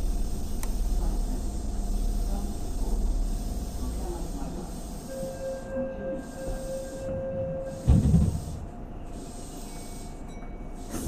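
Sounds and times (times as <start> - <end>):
train car hum with thin tones: 0.0 - 11.0.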